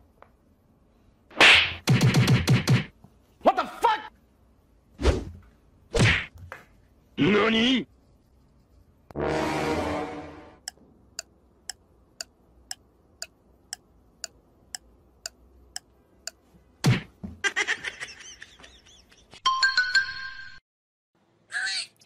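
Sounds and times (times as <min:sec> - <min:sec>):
even ticking: 0:10.6 - 0:16.4.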